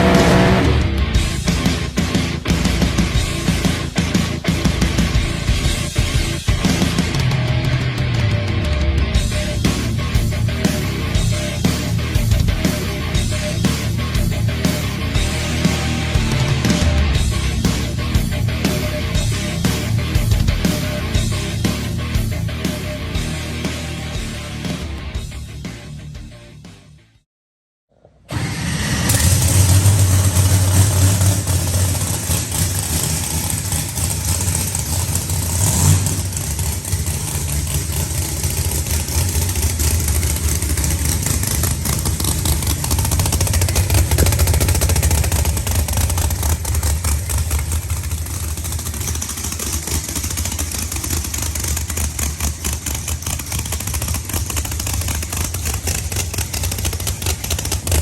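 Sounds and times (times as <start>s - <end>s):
vehicle engine rumbling: 0.0s - 23.3s, 27.9s - 58.0s.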